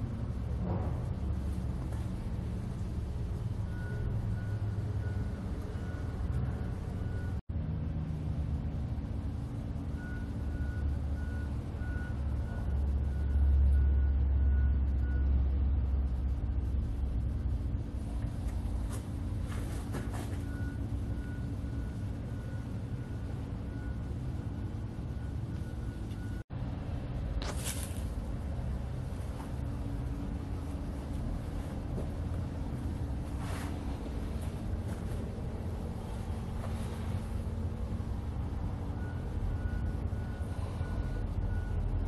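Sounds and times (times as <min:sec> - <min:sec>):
low steady rumble: 0:00.0 - 0:42.0
reversing alarm beeping: 0:03.6 - 0:07.4, 0:09.9 - 0:15.4, 0:20.2 - 0:26.4, 0:38.3 - 0:42.0.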